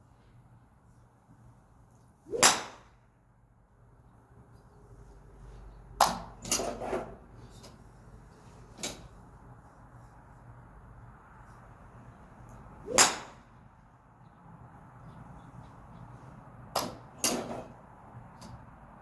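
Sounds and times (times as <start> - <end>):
golf club striking ball: 2.3 - 2.9, 12.9 - 13.5.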